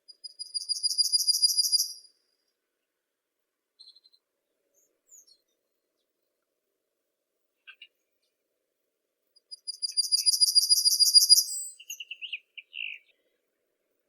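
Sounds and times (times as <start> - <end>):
songbird singing: 0.1 - 2.4, 3.8 - 6.4, 7.6 - 8.4, 9.4 - 13.5.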